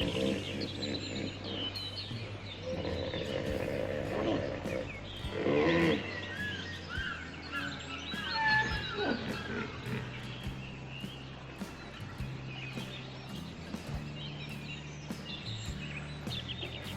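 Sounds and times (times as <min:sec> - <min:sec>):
low pitched animal call: 0:00.0 - 0:10.6
background music: 0:00.0 - 0:16.9
quick high chirps: 0:00.0 - 0:16.9.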